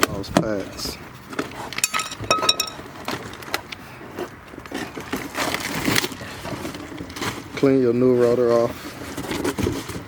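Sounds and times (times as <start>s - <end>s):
metal piece ringing: 1.8s - 2.8s
metal tools clinking and knocking: 1.8s - 2.9s.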